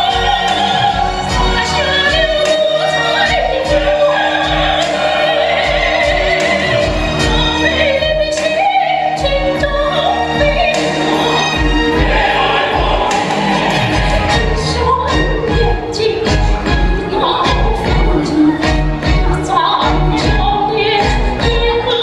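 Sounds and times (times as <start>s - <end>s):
woman singing with vibrato: 0.0s - 22.0s
musical accompaniment with low beat: 9.2s - 21.9s.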